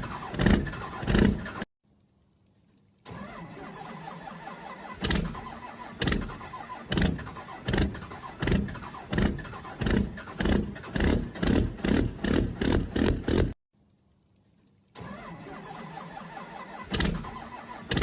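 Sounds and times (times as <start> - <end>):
motorbike engine pulses: 0.0 - 1.7, 4.7 - 13.6, 15.0 - 18.0.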